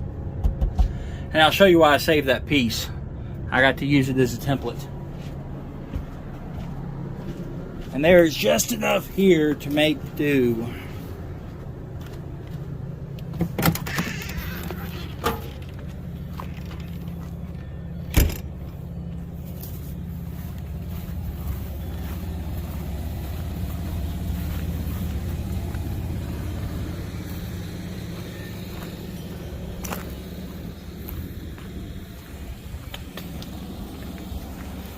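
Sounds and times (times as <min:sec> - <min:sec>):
low mechanical hum: 0:00.0 - 0:34.9.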